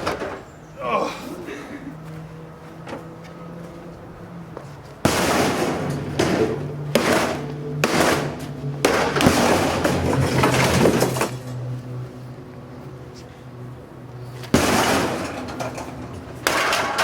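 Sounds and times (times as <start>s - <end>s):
shards clattering: 9.4s - 11.6s, 14.6s - 17.0s
glass breaking: 16.4s - 17.0s.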